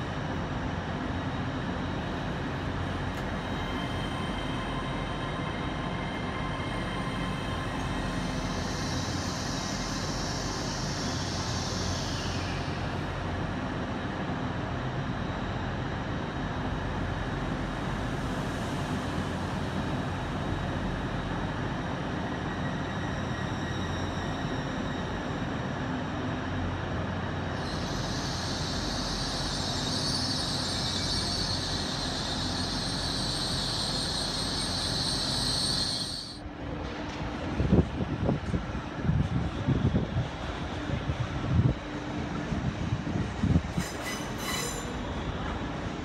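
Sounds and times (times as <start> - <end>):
electric train humming: 16.6 - 46.0
loud high-pitched hiss: 27.6 - 36.4.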